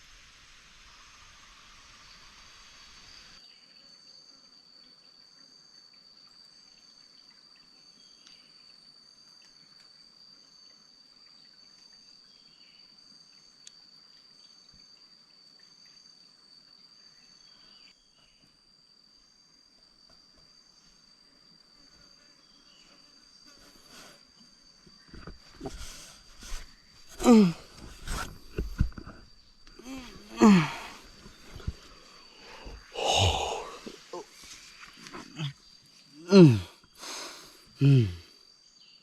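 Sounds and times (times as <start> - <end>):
hiss: 0.0 - 3.4, 36.9 - 38.2
insect chirping pulses: 0.0 - 39.0
insect high trill: 20.4 - 39.0.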